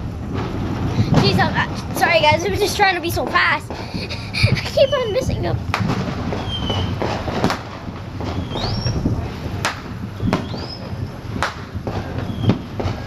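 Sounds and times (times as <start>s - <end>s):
firework bangs: 0.0s - 13.0s
steady low rumble: 0.0s - 13.0s
rising firework whistles: 4.4s - 13.0s.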